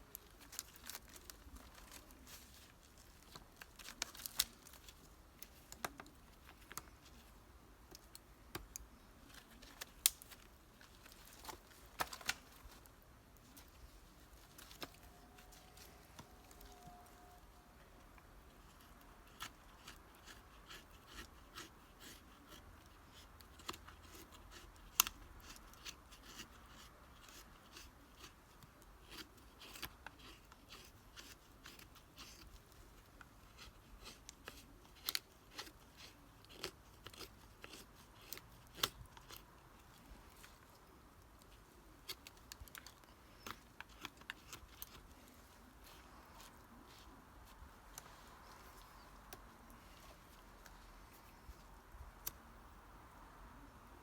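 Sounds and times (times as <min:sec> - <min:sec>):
knife scraping wood: 0:19.2 - 0:28.4, 0:29.0 - 0:32.6, 0:33.5 - 0:39.4.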